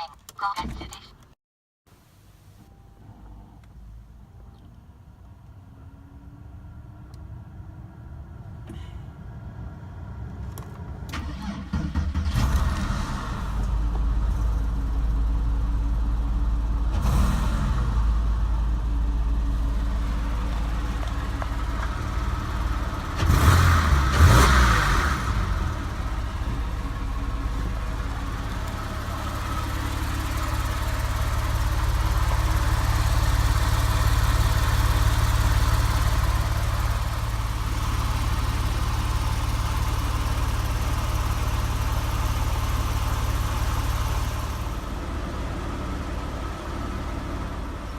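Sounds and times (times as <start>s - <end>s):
car engine running: 13.0s - 47.9s.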